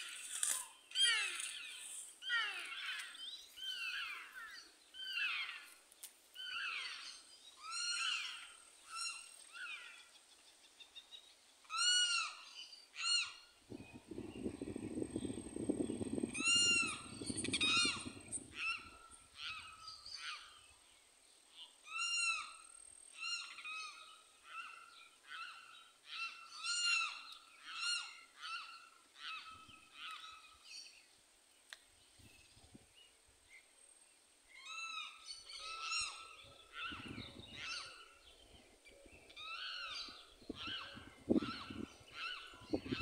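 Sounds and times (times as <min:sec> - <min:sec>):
birds calling in short notes: 0:11.7 - 0:20.8, 0:34.5 - 0:43.0.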